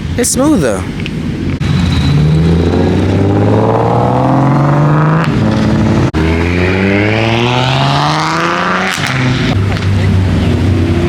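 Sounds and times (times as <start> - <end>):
sports car engine accelerating: 2.2 - 11.0.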